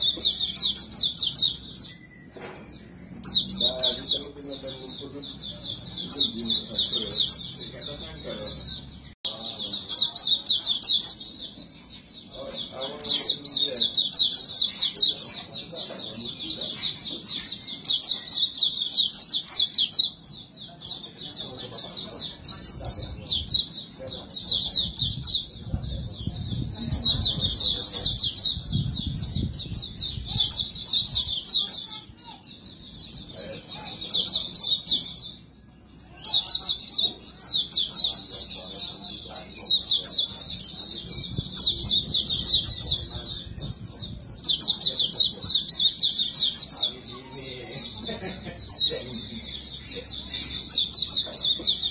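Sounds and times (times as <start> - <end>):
small bird twittering song: 0.0 - 51.9.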